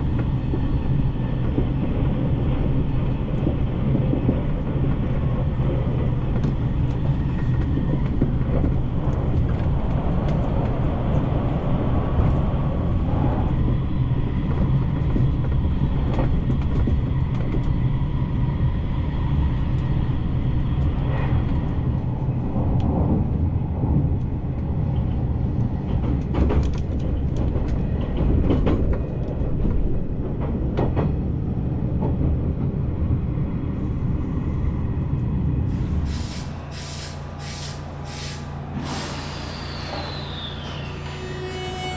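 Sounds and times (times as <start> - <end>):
train wheel and rail rumble: 0.0 - 41.9
rail clicks: 35.2 - 41.9.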